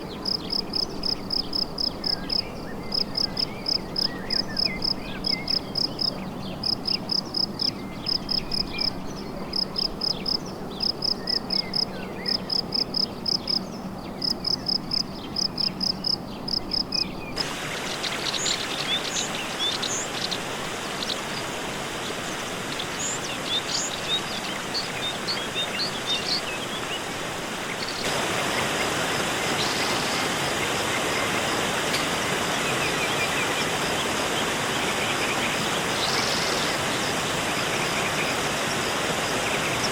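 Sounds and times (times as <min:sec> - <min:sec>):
steady hiss: 0:17.4 - 0:39.9.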